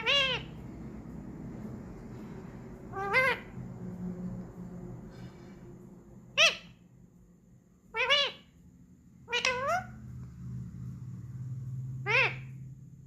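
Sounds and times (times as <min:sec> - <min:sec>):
parrot calling: 0:00.0 - 0:03.9, 0:06.3 - 0:06.9, 0:07.8 - 0:08.6, 0:09.2 - 0:10.2, 0:11.9 - 0:12.8.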